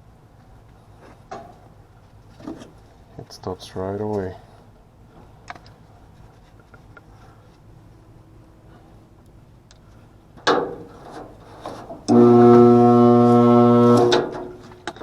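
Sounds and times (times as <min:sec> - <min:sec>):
electric motor humming: 0:12.1 - 0:14.6.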